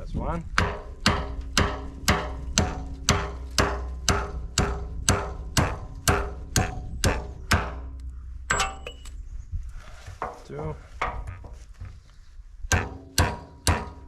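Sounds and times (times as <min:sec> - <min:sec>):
hammering on metal: 0:00.5 - 0:09.1, 0:12.7 - 0:14.0.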